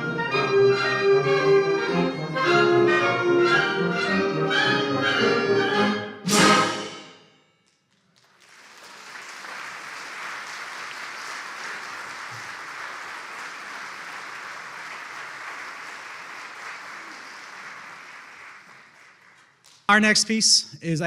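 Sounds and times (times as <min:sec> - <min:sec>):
audience applauding: 0:08.0 - 0:19.8.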